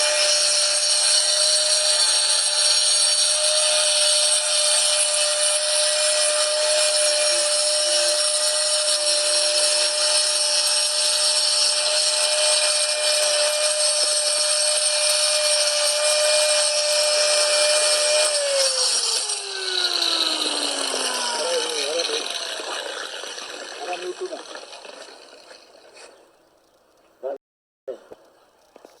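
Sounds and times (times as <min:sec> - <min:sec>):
angle grinder grinding grout: 0:00.0 - 0:26.5.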